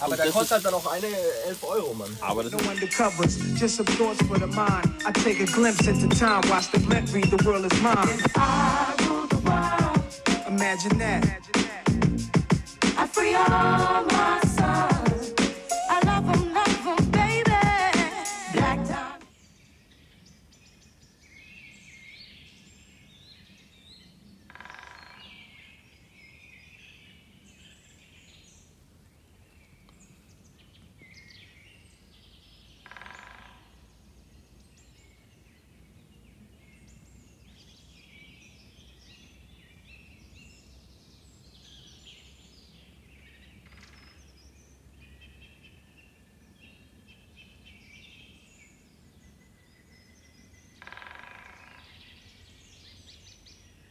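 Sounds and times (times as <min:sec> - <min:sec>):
small birds chirping and trilling: 0:00.0 - 0:08.4, 0:19.3 - 0:53.9
harsh bird calls: 0:32.6 - 0:34.0.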